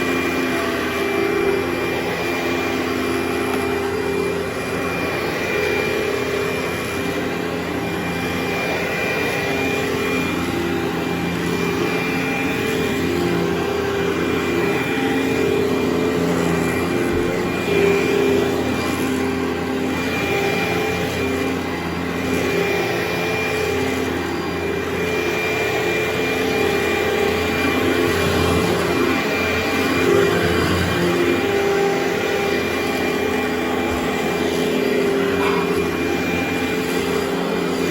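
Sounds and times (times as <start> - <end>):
carpet cleaning machine running: 0.0 - 37.9.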